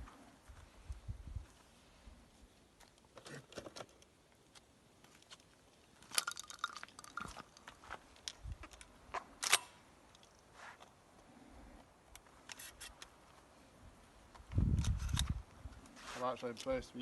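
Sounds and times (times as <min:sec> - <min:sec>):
shotgun clicks and rattles: 0:05.2 - 0:10.4.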